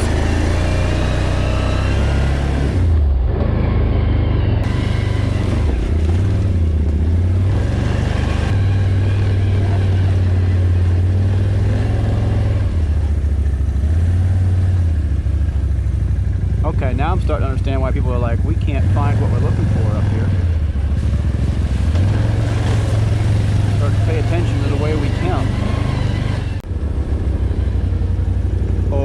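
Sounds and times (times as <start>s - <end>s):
atv engine revving: 0.0s - 29.0s.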